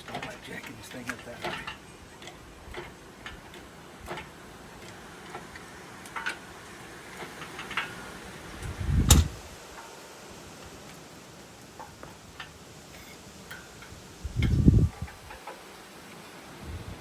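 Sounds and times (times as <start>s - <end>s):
heavy metal clunk: 9.0s - 9.4s.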